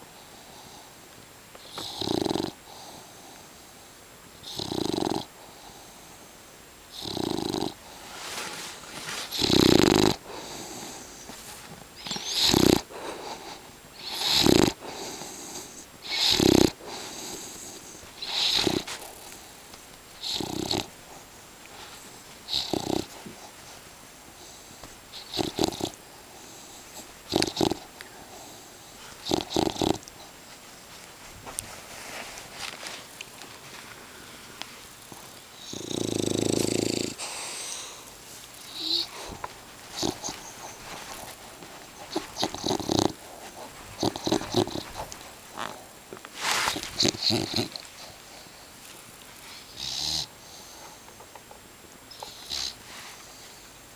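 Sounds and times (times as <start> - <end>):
dog snoring loudly: 1.6 - 3.1, 4.4 - 5.8, 6.9 - 8.0, 9.2 - 11.3, 12.0 - 19.4, 20.2 - 21.2, 22.4 - 23.5, 24.4 - 30.2, 35.0 - 38.0, 38.7 - 45.9, 46.7 - 48.5, 49.6 - 50.8, 52.1 - 52.8.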